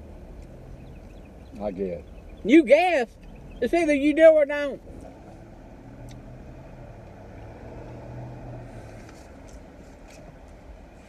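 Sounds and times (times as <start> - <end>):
car engine hum inside cabin: 0.0 - 11.0.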